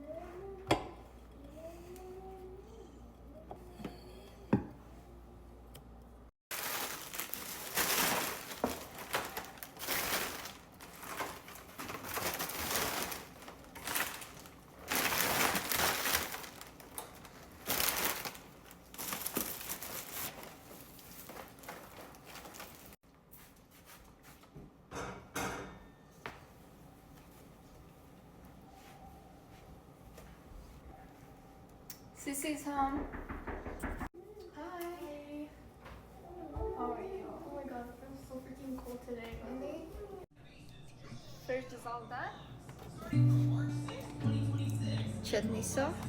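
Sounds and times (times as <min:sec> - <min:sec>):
plastic packaging crinkling: 0:06.5 - 0:23.0.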